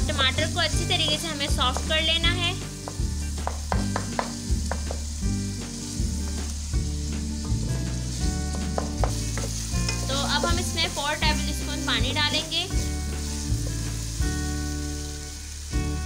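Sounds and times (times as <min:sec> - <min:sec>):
tomatoes and onions sizzling: 0:00.0 - 0:16.0
spoon scraping and tapping pan: 0:08.5 - 0:10.1.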